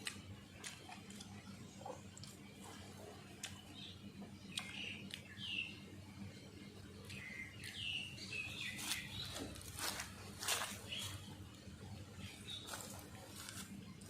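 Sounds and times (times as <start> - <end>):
person chewing food: 0.0 - 3.9, 4.5 - 5.4
birds chirping: 0.3 - 14.0.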